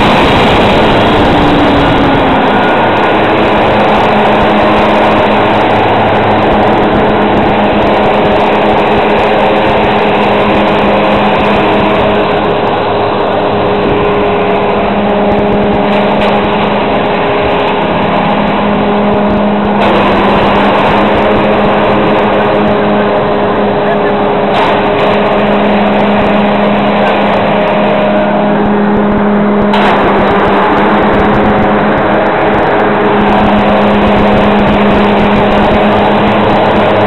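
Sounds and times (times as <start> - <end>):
forage harvester chopping silage: 0.0 - 37.0
tractor engine running under load: 0.0 - 37.0.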